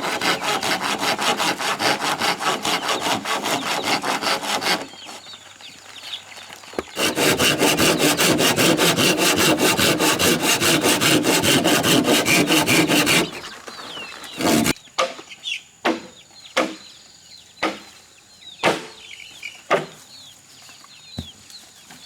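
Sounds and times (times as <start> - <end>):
hand saw cutting wood: 0.0 - 5.2, 6.8 - 13.5, 14.3 - 14.8.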